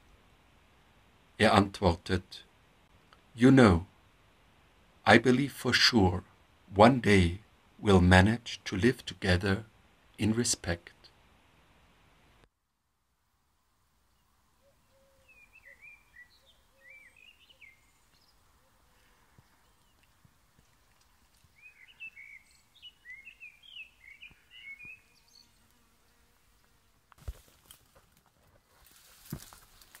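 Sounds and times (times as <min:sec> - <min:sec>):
faint songbird singing: 0:14.0 - 0:27.0.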